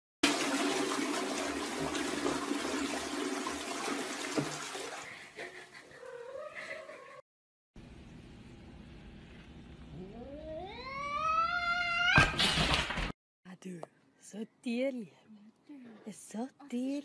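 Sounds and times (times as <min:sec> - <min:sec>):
toilet flushing: 0:00.2 - 0:05.8
cat meowing: 0:10.0 - 0:12.3.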